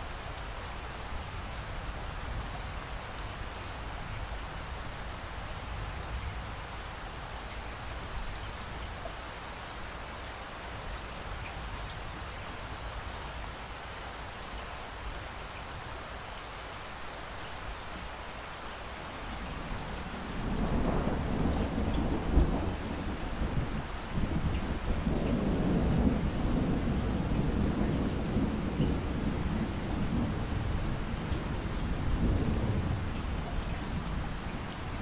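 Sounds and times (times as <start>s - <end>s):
steady rain falling: 0.0s - 35.0s
thunder rumbling: 19.8s - 35.0s.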